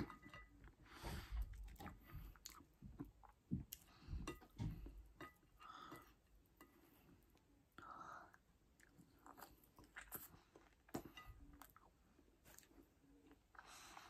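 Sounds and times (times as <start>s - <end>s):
person chewing: 1.4s - 4.0s, 8.7s - 14.0s.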